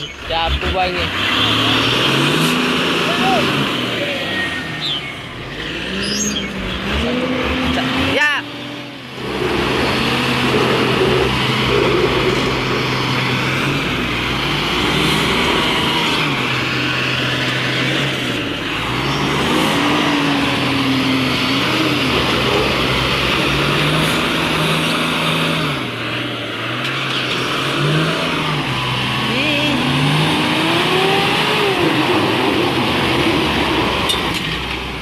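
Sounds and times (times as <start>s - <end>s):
truck engines revving under load: 0.0s - 35.0s.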